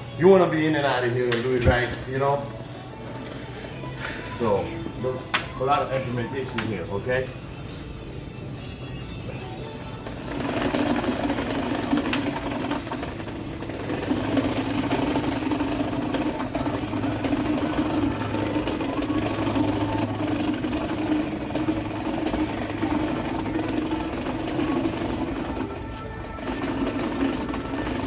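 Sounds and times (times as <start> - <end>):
pumping machinery drone: 9.1 - 28.0.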